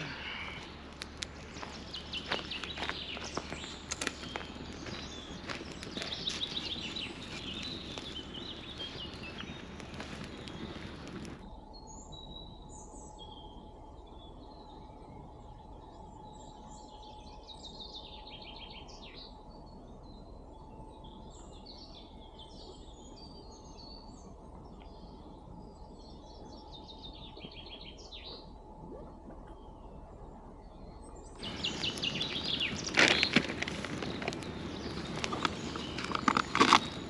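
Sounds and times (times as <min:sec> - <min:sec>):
outdoor background noise: 0:00.0 - 0:37.0
songbird singing: 0:00.0 - 0:37.0
rustling clattering noise: 0:31.4 - 0:37.0.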